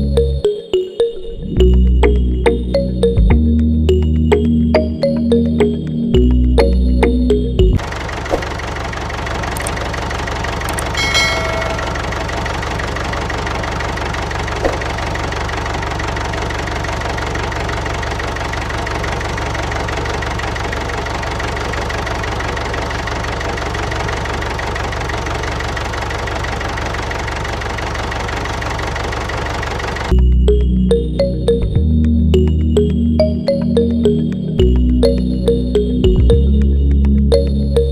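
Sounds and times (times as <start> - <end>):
engine idling: 5.6 - 31.6
short high chime: 10.7 - 12.3.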